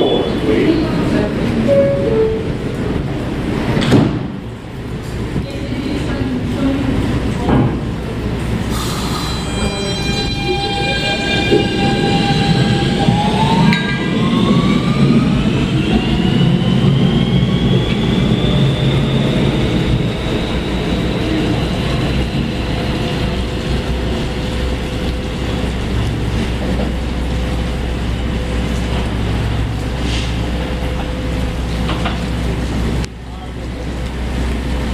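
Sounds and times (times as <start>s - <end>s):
train cars rumbling on rails: 0.0s - 34.9s
train traction motors whining: 8.0s - 34.9s.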